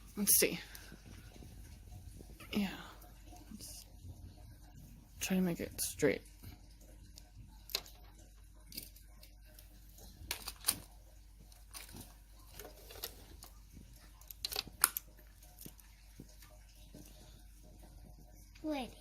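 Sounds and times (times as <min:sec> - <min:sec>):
plastic toy pieces clacking: 0:10.3 - 0:10.9, 0:14.2 - 0:15.8.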